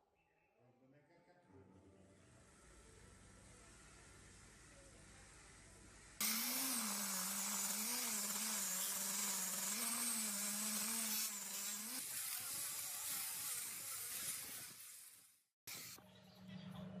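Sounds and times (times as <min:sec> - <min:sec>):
power tool motor running: 0:06.2 - 0:16.0.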